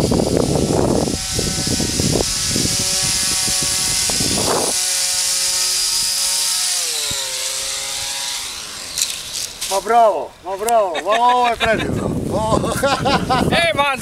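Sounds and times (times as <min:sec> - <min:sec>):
wind buffeting microphone: 0:00.0 - 0:06.4, 0:11.3 - 0:14.0
electric motor and propeller whine: 0:00.0 - 0:13.5.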